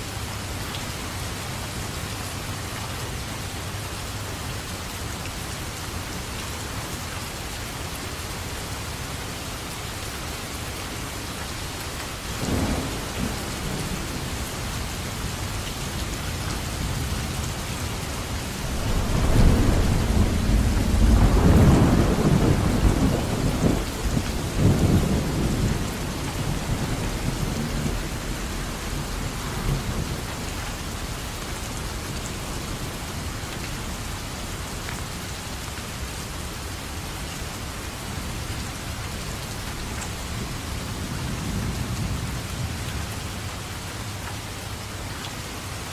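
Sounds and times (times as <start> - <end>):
steady rain: 0.0 - 45.9
thunder: 12.4 - 14.6, 18.6 - 30.4.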